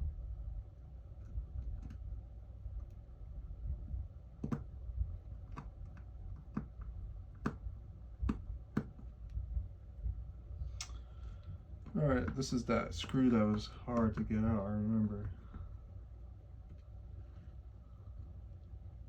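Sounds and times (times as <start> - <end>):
steady low rumble: 0.0 - 19.0
small clicks and taps: 1.2 - 2.0, 4.4 - 4.8, 5.4 - 9.4, 11.8 - 14.4.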